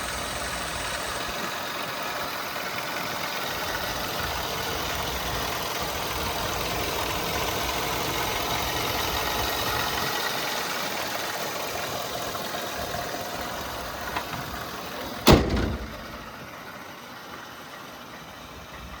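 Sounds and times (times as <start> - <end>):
truck engine idling: 0.0 - 19.0
loud thump: 15.2 - 16.3.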